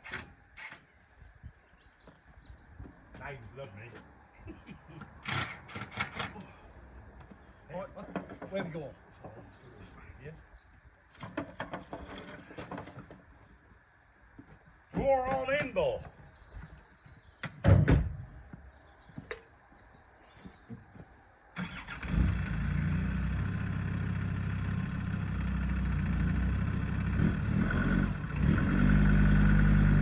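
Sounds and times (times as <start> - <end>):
diesel engine starting and running: 21.6 - 30.0.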